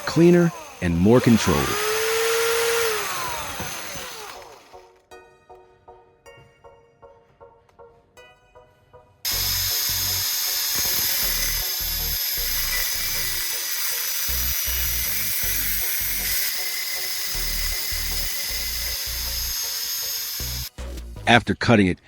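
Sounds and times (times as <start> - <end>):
cutting wheel grinding steel: 0.0 - 5.0, 9.3 - 21.0.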